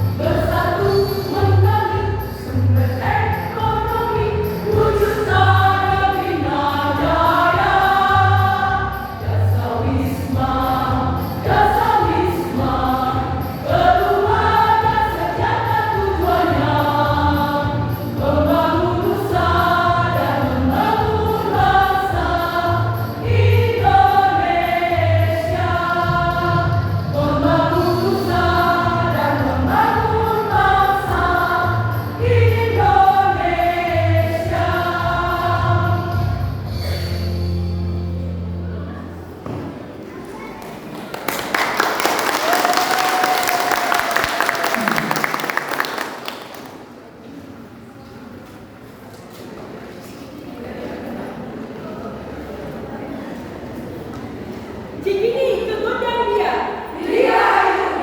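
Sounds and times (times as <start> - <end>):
choir singing with accompaniment: 0.0 - 37.5, 56.7 - 58.0.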